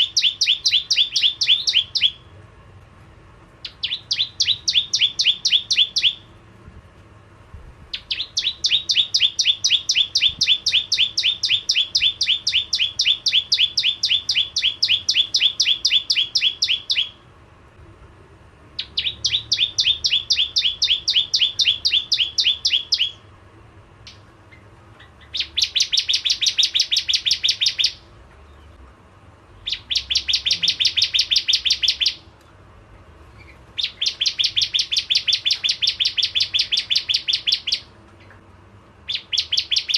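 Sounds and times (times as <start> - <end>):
bird singing rapid high chips: 0.0 - 2.3, 3.6 - 6.4, 7.9 - 17.2, 18.8 - 23.3, 24.0 - 28.1, 29.6 - 32.3, 33.3 - 38.0, 39.1 - 39.9.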